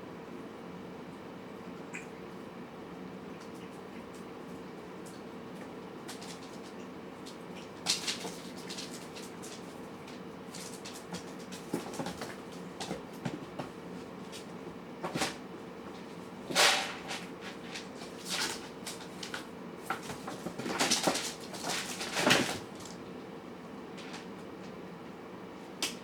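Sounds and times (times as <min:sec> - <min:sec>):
food bowl scrapes and clatters: 0:16.0 - 0:22.8.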